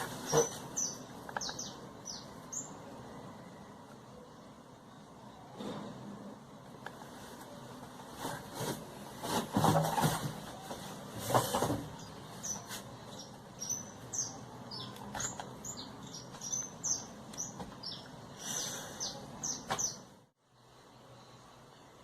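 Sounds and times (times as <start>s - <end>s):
small bird chirping: 0.0s - 2.8s, 12.0s - 20.2s.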